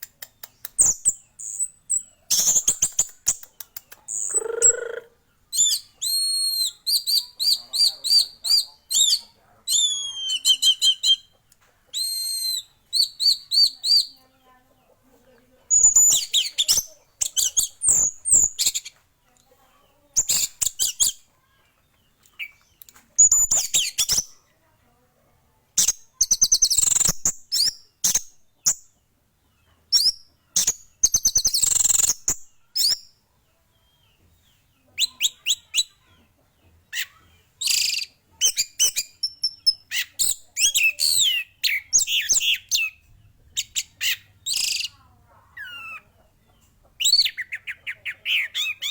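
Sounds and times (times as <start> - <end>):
bird singing chirps and whistles: 0.7 - 3.4, 4.1 - 11.3, 11.9 - 14.1, 15.7 - 18.9, 23.2 - 24.3, 25.8 - 28.8, 29.9 - 33.1, 37.6 - 43.0, 43.6 - 44.9.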